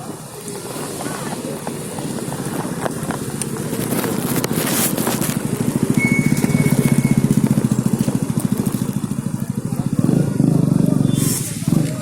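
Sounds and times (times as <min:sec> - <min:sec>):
small engine running: 0:01.8 - 0:11.1.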